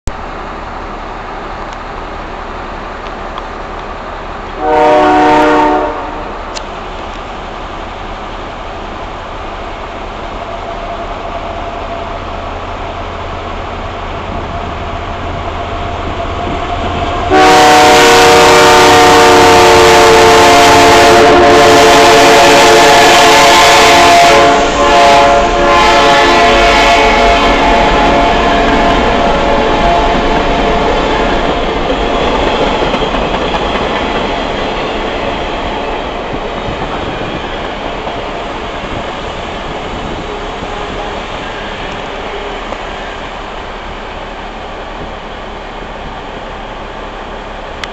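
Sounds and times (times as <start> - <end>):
train rumble: 0.1 - 47.9
loud locomotive horn chord: 4.6 - 6.6, 17.2 - 31.3.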